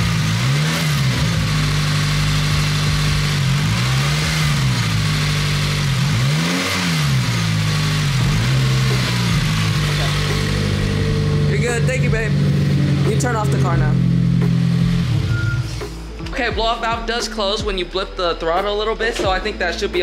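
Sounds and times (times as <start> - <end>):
engine revving on throttle blips: 0.0 - 16.0
car engine idling: 0.0 - 20.0.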